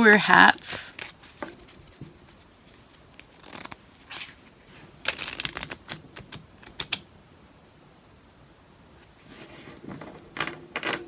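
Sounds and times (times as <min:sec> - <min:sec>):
cards being shuffled by hand: 0:00.3 - 0:07.0.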